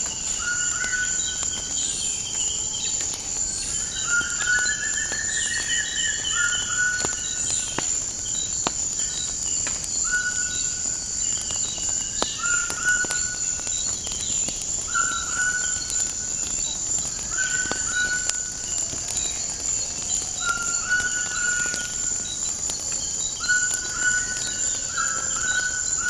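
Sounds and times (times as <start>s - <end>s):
high insect drone: 0.0s - 26.0s
wood fire crackling and popping: 0.0s - 26.0s
bird whistled call: 3.8s - 7.4s, 12.4s - 13.6s, 14.9s - 16.1s, 17.3s - 18.6s, 20.4s - 22.2s, 23.4s - 26.0s.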